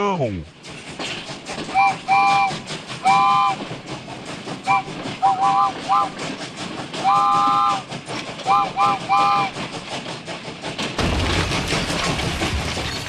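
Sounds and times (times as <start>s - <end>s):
rapid rail clatter: 0.5s - 13.0s
train whistle chord: 1.7s - 3.6s, 4.6s - 6.2s, 7.0s - 7.9s, 8.5s - 9.6s.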